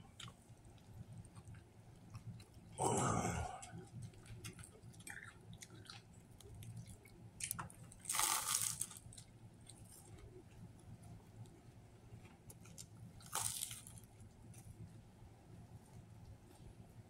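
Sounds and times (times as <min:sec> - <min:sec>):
person chewing: 0:00.0 - 0:10.3, 0:12.5 - 0:14.6
crunchy bite into bread roll: 0:07.4 - 0:09.2, 0:12.6 - 0:14.1.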